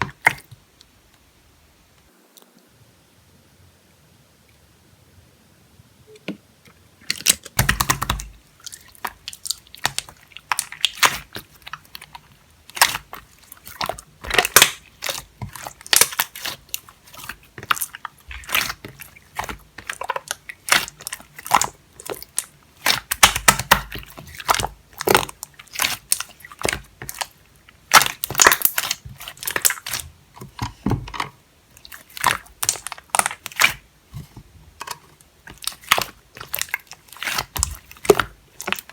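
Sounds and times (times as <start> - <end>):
slime squished by hand: 7.1 - 30.7, 31.8 - 34.3, 35.4 - 38.9.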